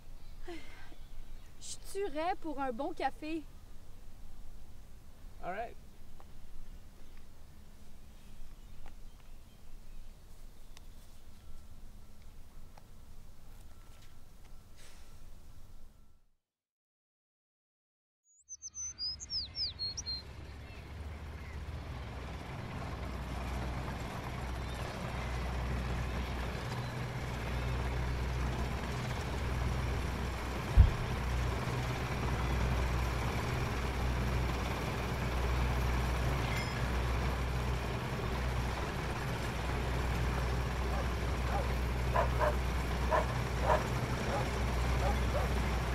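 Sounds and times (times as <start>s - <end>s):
bird chirping: 18.3s - 21.6s
sharp thump: 30.8s - 31.0s.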